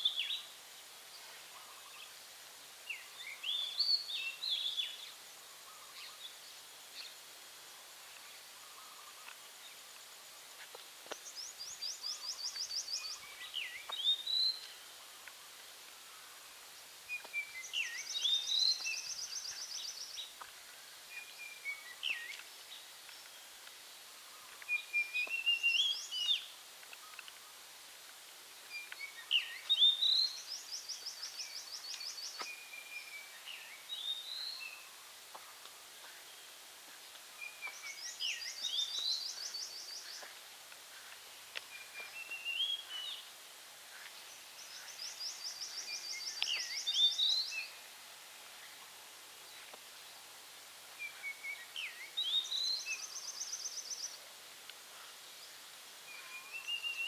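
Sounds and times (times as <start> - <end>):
birds singing: 0.0 - 2.2, 2.8 - 7.3, 8.0 - 27.7, 28.5 - 50.3, 50.9 - 54.3, 54.9 - 57.0
background hiss: 0.0 - 57.0
birds whistling: 41.7 - 43.2.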